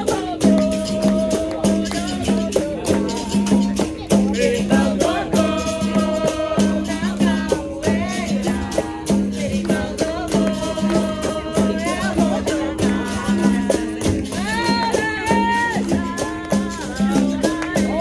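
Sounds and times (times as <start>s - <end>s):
percussion strikes: 0.0s - 18.0s
shaker rattling: 0.0s - 18.0s
voices singing: 0.0s - 18.0s.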